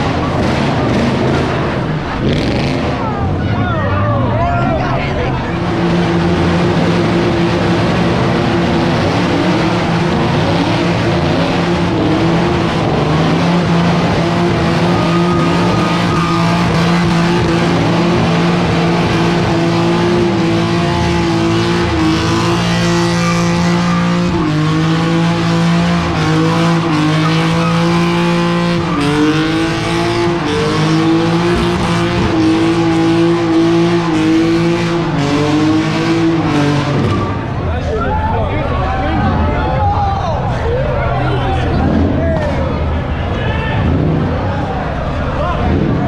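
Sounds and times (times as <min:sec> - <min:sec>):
car engine at high revs: 0:00.0 - 0:37.9, 0:40.8 - 0:46.0
tyre squeal: 0:14.6 - 0:17.1, 0:26.1 - 0:30.7.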